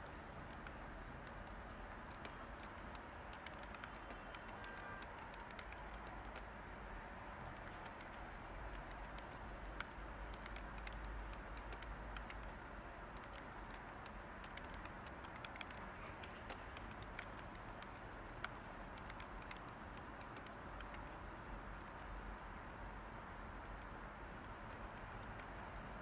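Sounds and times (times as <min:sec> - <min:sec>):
keyboard typing: 0:00.0 - 0:06.6, 0:07.4 - 0:21.2, 0:23.8 - 0:25.6
white noise hiss: 0:00.0 - 0:26.0.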